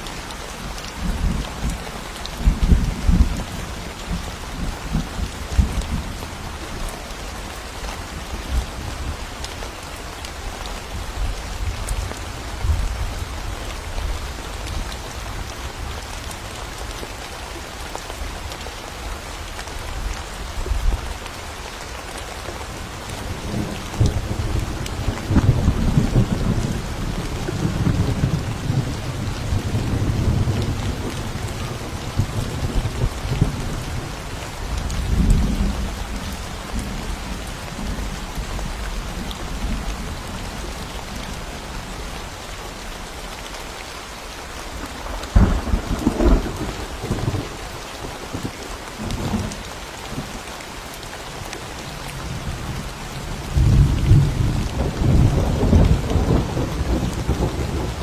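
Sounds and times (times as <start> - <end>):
steady rain: 0.0 - 58.0
rolling thunder: 45.3 - 48.5, 53.5 - 58.0.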